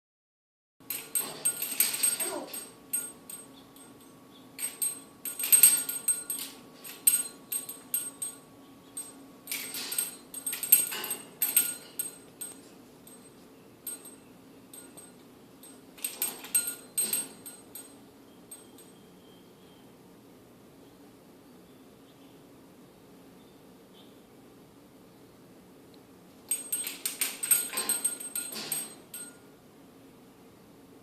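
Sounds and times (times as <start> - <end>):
toy rattling and jingling: 0.9 - 19.0, 26.5 - 29.4.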